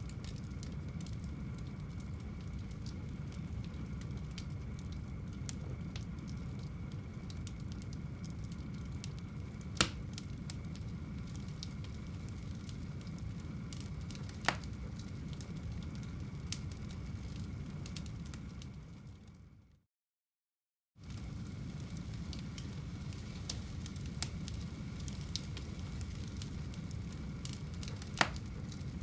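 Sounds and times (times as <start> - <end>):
fire crackling: 0.0 - 19.6, 21.0 - 29.0
low rumble of flames: 0.0 - 19.8, 21.0 - 29.0
sharp pops of burning wood: 7.4 - 10.8, 11.4 - 15.5, 22.6 - 29.0.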